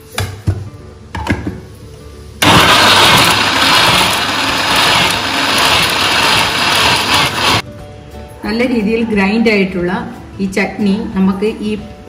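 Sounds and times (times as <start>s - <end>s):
electric mixer grinder running: 2.4s - 7.6s.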